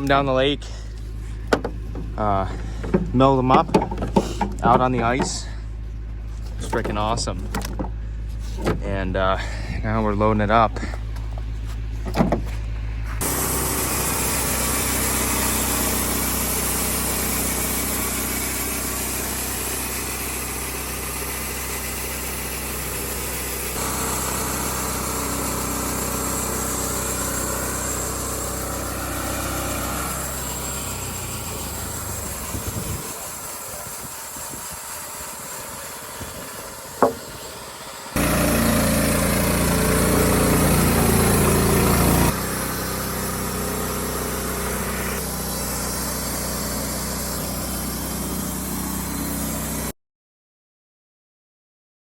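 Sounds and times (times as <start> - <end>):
engine idling: 0.0 - 49.7
sharp knock: 37.0 - 37.3.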